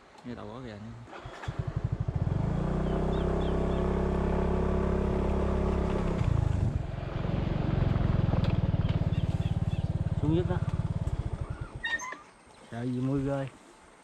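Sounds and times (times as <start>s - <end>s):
small engine starting and running: 1.1s - 12.0s.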